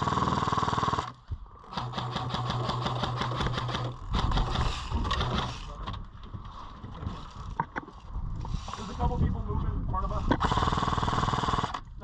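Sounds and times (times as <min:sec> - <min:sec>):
airsoft gun firing full auto: 0:01.7 - 0:05.5, 0:10.4 - 0:11.9.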